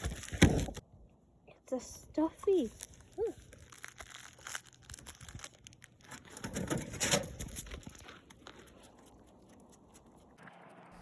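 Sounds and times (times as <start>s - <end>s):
toy packaging crinkling: 0.0s - 0.8s, 2.4s - 6.5s.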